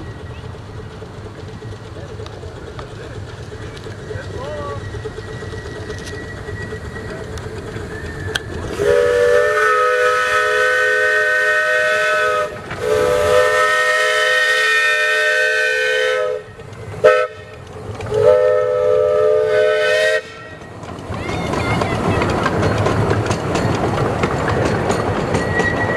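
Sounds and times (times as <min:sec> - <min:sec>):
train rumbling: 0:00.0 - 0:25.9
steam locomotive chime whistle: 0:04.3 - 0:20.8, 0:25.3 - 0:25.9.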